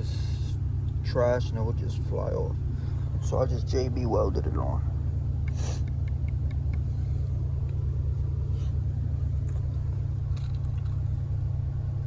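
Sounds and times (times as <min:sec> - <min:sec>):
low rumble: 0:00.0 - 0:12.0
brief hiss: 0:05.5 - 0:06.0.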